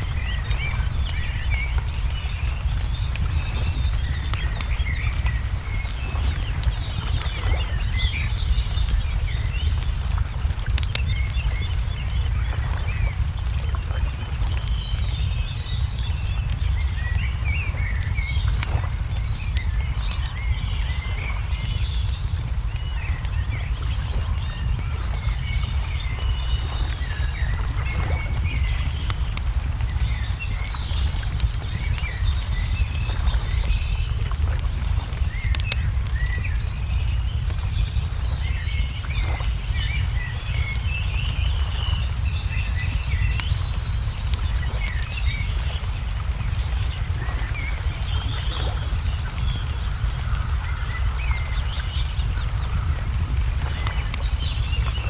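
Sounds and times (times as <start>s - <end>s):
songbirds chirping: 0.0s - 55.0s
wood fire crackling: 0.0s - 55.0s.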